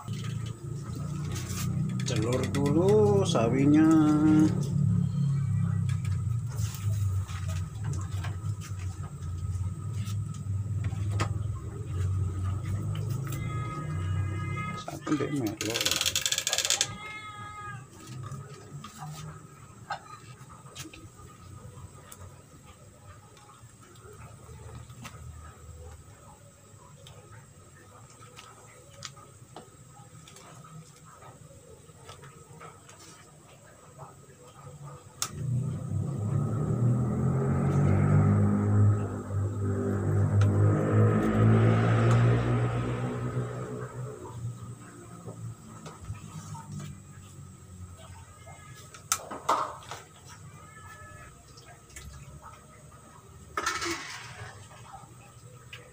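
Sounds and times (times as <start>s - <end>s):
utensils clicking and knocking: 15.4s - 17.0s
pot boiling: 42.0s - 55.9s.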